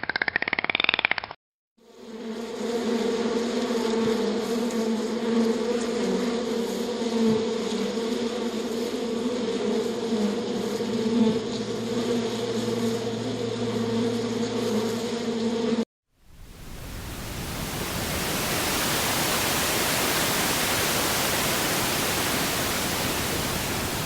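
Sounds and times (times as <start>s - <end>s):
flying insects buzzing: 1.8s - 24.0s.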